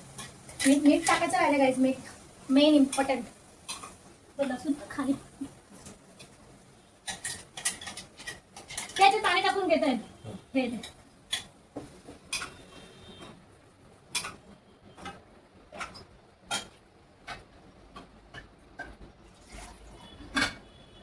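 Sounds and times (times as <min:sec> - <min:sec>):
kitchen utensils clinking: 0:00.0 - 0:06.4, 0:07.0 - 0:10.0, 0:12.2 - 0:13.3, 0:14.1 - 0:14.4, 0:15.0 - 0:17.4, 0:19.6 - 0:20.8.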